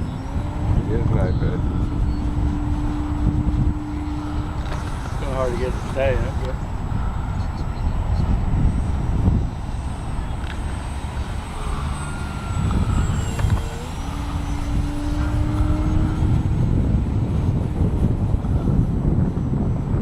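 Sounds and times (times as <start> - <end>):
model plane motor whine: 0.0 - 20.0
wind buffeting microphone: 0.0 - 20.0.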